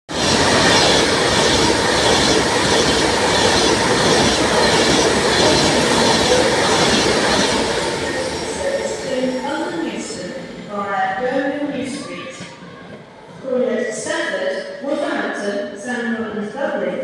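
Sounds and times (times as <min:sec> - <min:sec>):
electric train passing at speed: 0:00.1 - 0:12.0.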